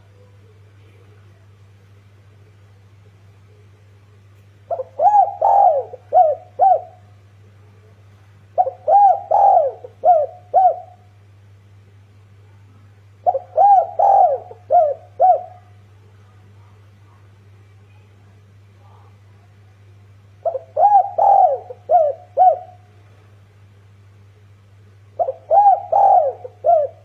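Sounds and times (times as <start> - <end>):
dove cooing: 4.7 - 7.2, 8.5 - 11.2, 13.2 - 15.9, 20.4 - 23.0, 25.1 - 27.0.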